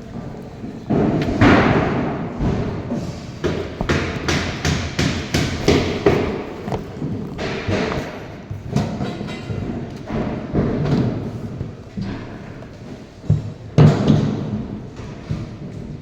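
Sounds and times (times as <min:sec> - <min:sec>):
loud rumbling knock: 0:00.9 - 0:08.2
heavy thuds: 0:00.9 - 0:08.7.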